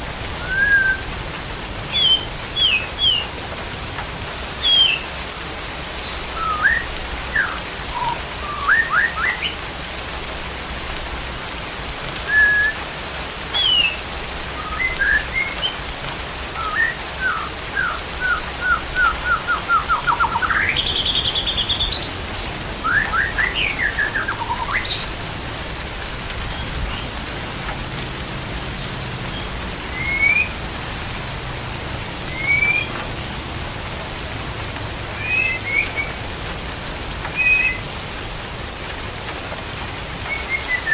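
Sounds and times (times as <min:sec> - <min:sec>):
steady hiss: 0:00.0 - 0:40.9
songbird singing: 0:00.4 - 0:01.2, 0:01.8 - 0:03.4, 0:04.5 - 0:05.2, 0:05.9 - 0:09.7, 0:12.2 - 0:12.8, 0:13.4 - 0:25.4, 0:26.4 - 0:27.3, 0:28.7 - 0:31.1, 0:32.2 - 0:33.4, 0:35.1 - 0:36.2, 0:37.2 - 0:37.9, 0:40.1 - 0:40.9.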